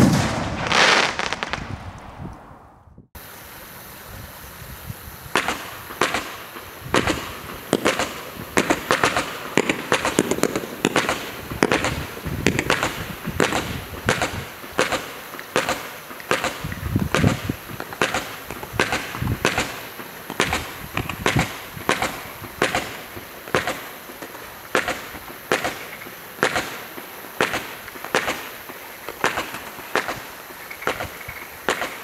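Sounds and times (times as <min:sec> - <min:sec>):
fireworks bangs: 0:00.0 - 0:03.4, 0:04.9 - 0:32.0.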